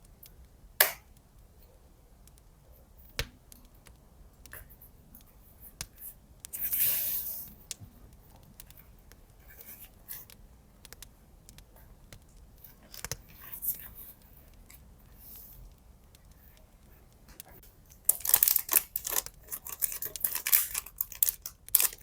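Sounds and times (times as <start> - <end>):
light clicks and taps: 0.0 - 22.0
paper rustle: 17.9 - 22.0.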